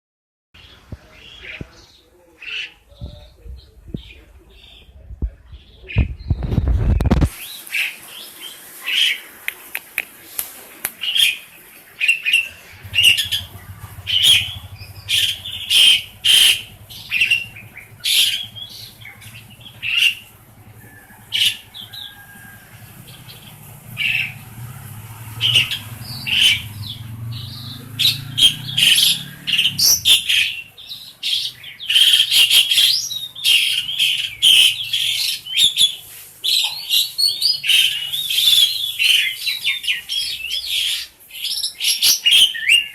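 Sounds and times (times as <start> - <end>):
starling chattering call: 12.2 - 36.0
low steady hum: 12.5 - 30.8.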